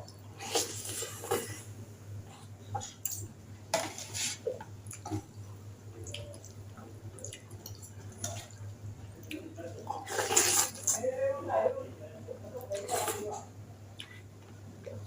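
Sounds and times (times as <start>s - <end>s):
faint steady low hum: 0.0s - 15.0s
wet slurping and chewing: 0.3s - 1.7s, 3.8s - 11.0s.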